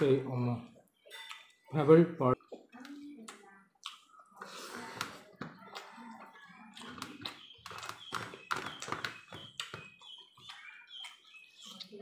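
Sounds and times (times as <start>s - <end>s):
chewing and lip-smacking: 2.4s - 12.0s.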